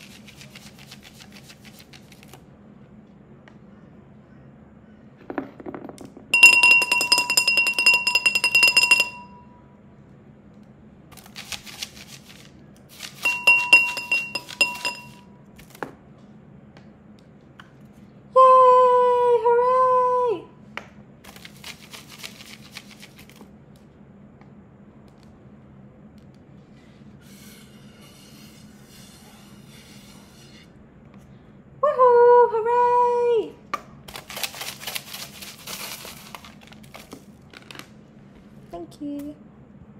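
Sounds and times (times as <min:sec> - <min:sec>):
clinking tapping or shaking: 0:06.4 - 0:09.4, 0:13.2 - 0:15.2.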